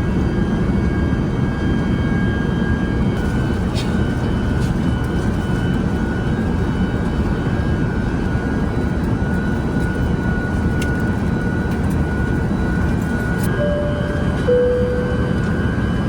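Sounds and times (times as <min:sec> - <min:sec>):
airliner cabin rumble: 0:03.1 - 0:16.0
thin steady whine: 0:10.1 - 0:16.0.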